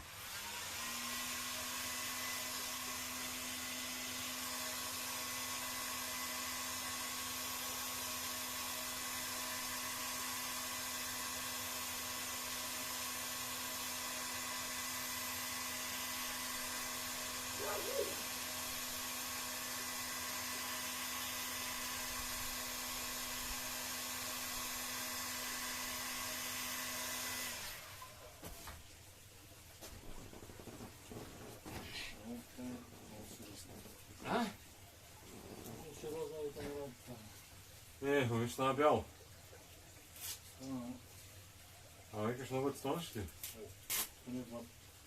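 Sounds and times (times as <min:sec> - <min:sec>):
heat gun blowing and humming: 0:00.0 - 0:28.4.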